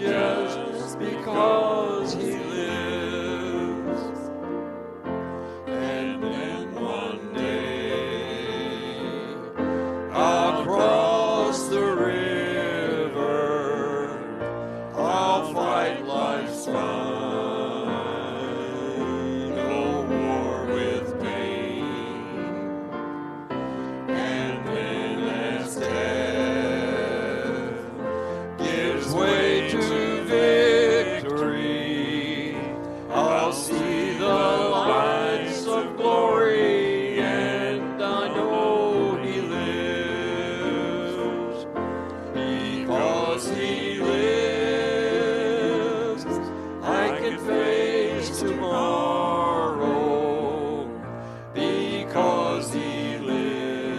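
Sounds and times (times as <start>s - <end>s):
church singing: 0.0s - 53.9s
sustained accompaniment: 0.0s - 53.9s.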